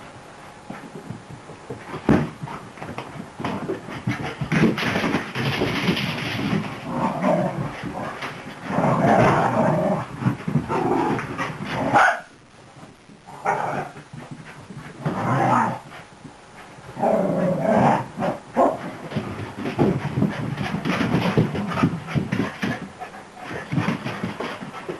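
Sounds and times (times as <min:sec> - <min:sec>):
dogs growling and barking: 0:03.4 - 0:12.3, 0:13.3 - 0:14.1, 0:15.0 - 0:16.0, 0:16.9 - 0:24.6.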